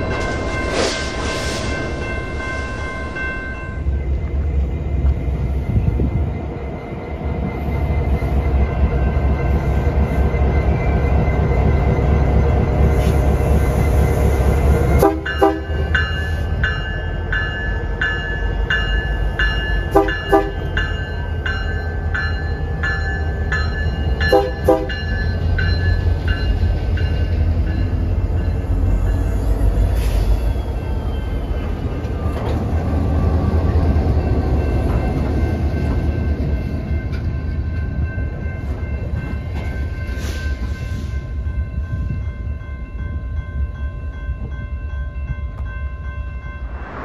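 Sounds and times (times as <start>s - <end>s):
crossing bell ringing: 0.0s - 4.4s, 15.1s - 29.8s, 30.8s - 47.0s
freight train rumbling: 0.0s - 47.0s
train horn toots: 15.0s - 15.8s, 19.9s - 20.7s, 24.3s - 25.0s.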